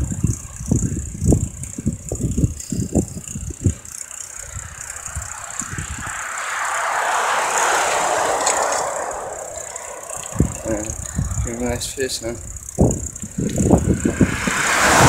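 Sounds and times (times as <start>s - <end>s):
wind buffeting microphone: 0.0s - 15.0s
rushing noise: 4.4s - 11.6s, 13.0s - 15.0s.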